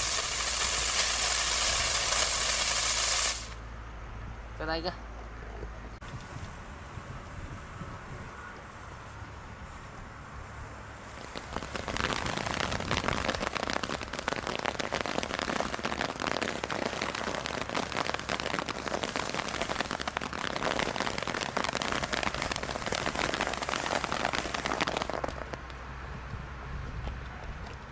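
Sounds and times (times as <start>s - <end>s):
firework crackling: 0.0s - 3.6s, 10.8s - 25.8s.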